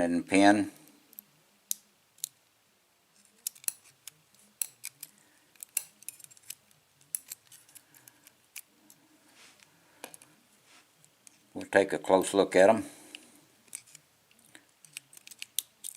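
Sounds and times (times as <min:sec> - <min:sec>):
metallic clicks of lock parts: 0:01.1 - 0:02.4, 0:03.3 - 0:09.0, 0:13.1 - 0:15.9.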